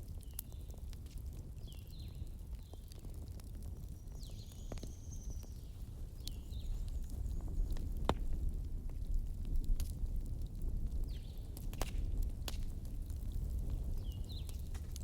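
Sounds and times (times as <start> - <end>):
fire crackling and popping: 0.0 - 15.0
fire low rumble: 0.0 - 15.0.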